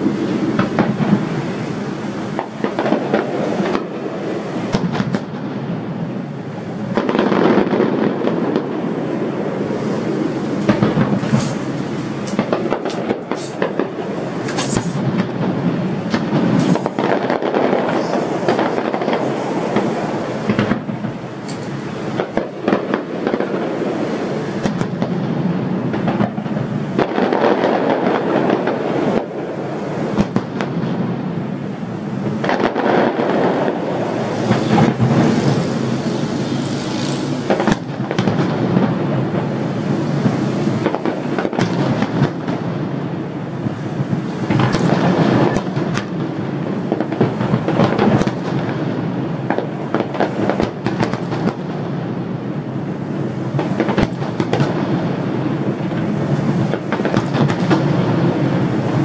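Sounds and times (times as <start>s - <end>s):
fireworks bursting and crackling: 0.0s - 59.0s
sharp loud bangs: 9.6s - 23.6s.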